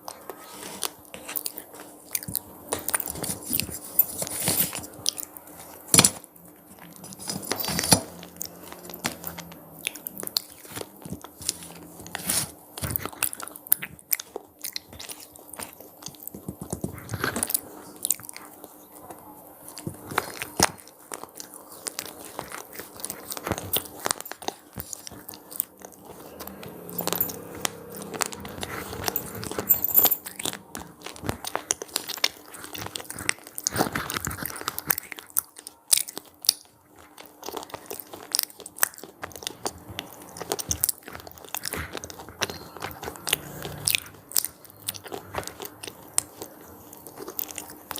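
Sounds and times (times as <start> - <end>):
crunching snacks: 0.0 - 47.9
quiet chewing: 0.0 - 47.9.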